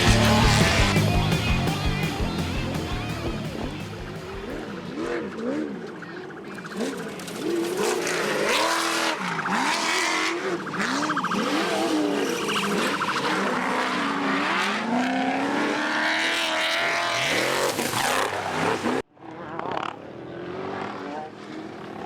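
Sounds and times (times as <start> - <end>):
engines revving hard: 0.0 - 22.0.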